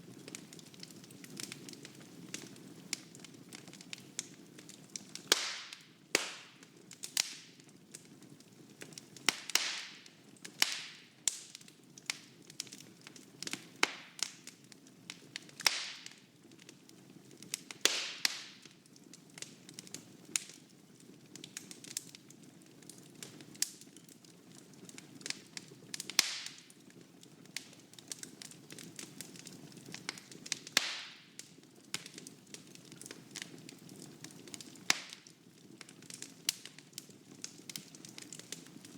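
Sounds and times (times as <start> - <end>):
low rumble of flames: 0.0 - 15.7
fire popping and snapping: 0.0 - 38.9.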